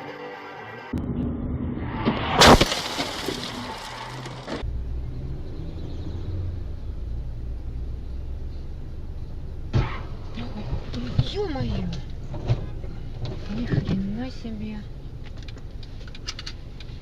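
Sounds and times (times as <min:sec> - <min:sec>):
car crash: 0:00.9 - 0:04.7
vehicle rumbling on road: 0:00.9 - 0:17.0
crunching and breaking noise: 0:02.2 - 0:04.7.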